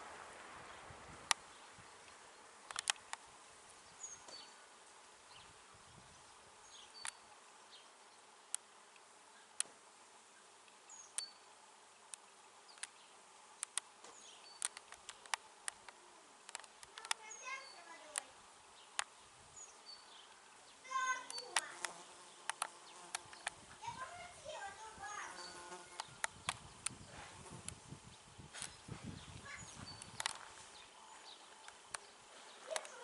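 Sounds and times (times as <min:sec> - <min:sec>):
sharp clicks: 0:02.1 - 0:03.2, 0:12.1 - 0:13.0, 0:13.6 - 0:13.9, 0:14.5 - 0:17.3, 0:21.2 - 0:23.6, 0:26.0 - 0:27.0, 0:30.0 - 0:30.5
bees buzzing: 0:20.8 - 0:23.5, 0:25.1 - 0:26.2.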